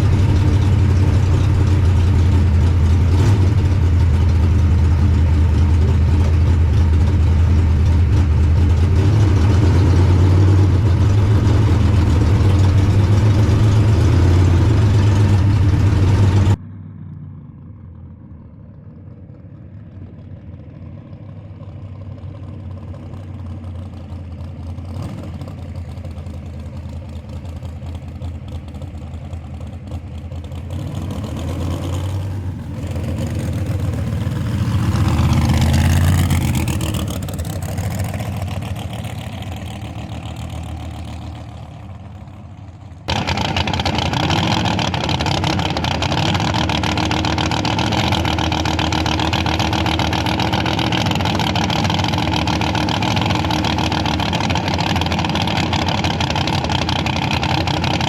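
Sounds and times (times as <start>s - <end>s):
car engine revving: 0.0s - 16.6s, 29.5s - 58.0s.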